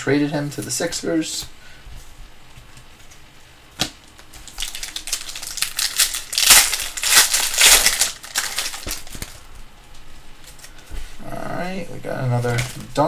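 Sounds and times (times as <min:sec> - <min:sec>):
foil wrapper crinkling: 0:04.0 - 0:09.6.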